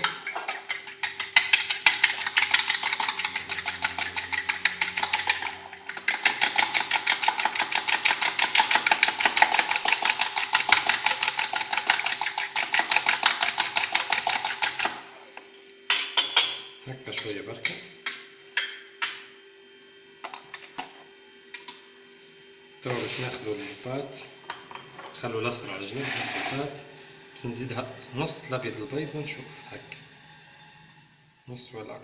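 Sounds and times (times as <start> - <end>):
fork beating egg in bowl: 0.0 - 15.0.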